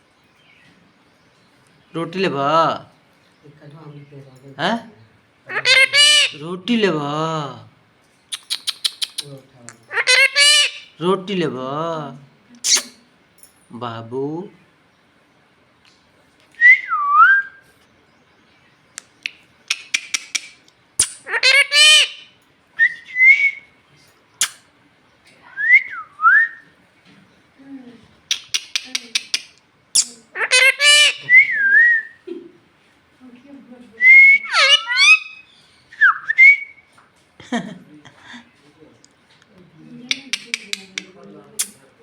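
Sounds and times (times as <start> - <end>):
parrot clicks: 19.0 - 21.2, 28.3 - 29.6, 40.1 - 41.8
parrot whistle: 34.1 - 36.8.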